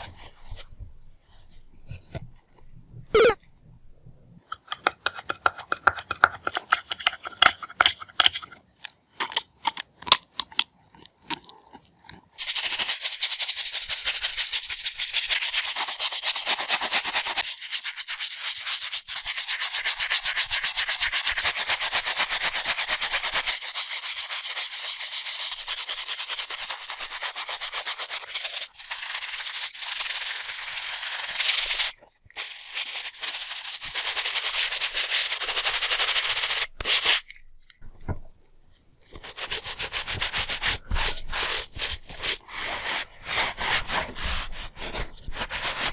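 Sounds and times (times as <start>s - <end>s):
brush scrubbing a sneaker: 0.0s - 1.7s, 12.4s - 37.4s, 39.1s - 45.9s.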